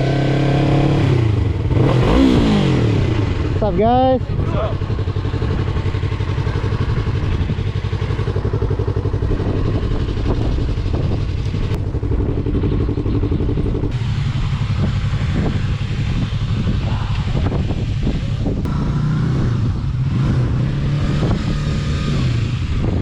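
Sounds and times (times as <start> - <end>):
motorcycle engine idling: 3.0 - 20.0.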